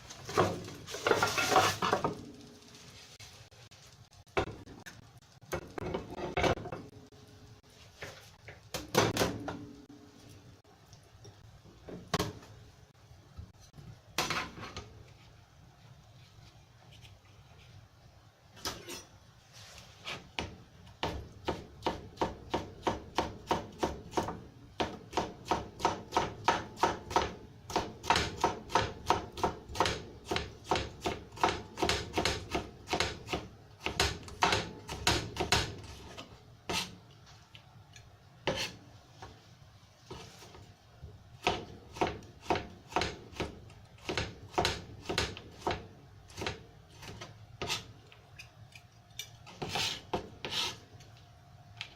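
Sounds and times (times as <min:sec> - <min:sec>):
knife cutting on wooden board: 0:38.5 - 0:38.8, 0:49.6 - 0:50.8.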